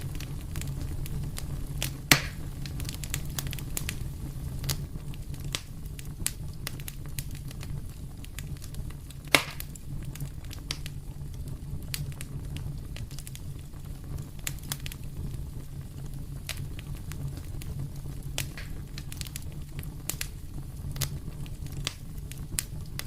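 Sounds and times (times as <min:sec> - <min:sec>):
fire crackling: 0:00.0 - 0:23.0
low rumble of flames: 0:00.0 - 0:23.0
loud fire pop: 0:02.0 - 0:02.9, 0:09.3 - 0:09.8, 0:18.4 - 0:18.9.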